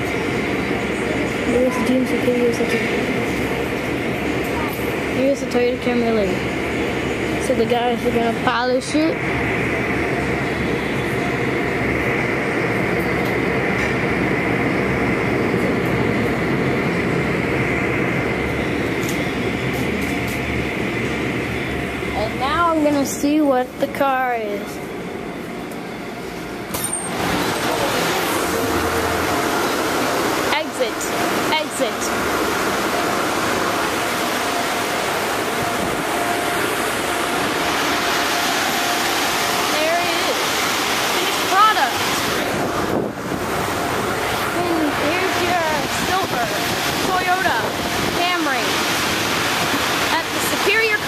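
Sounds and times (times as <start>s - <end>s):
car wash blowers and water rushing: 0.0s - 51.0s
air dryer blowers rushing: 26.9s - 31.6s.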